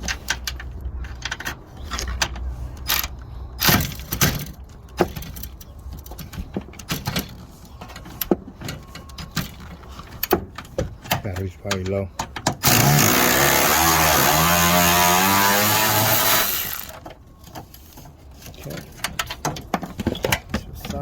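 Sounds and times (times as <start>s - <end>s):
tools and car parts clanking: 0.0s - 13.1s, 16.0s - 21.0s.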